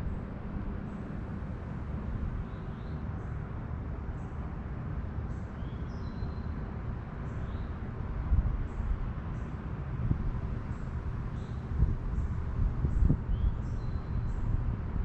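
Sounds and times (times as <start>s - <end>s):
steady low rumble: 0.0s - 2.6s, 9.8s - 15.0s.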